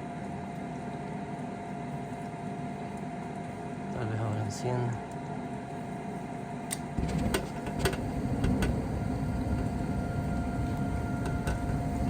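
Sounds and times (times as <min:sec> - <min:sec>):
steady hum: 0:00.0 - 0:12.0
furnace motor rumble: 0:01.1 - 0:12.0.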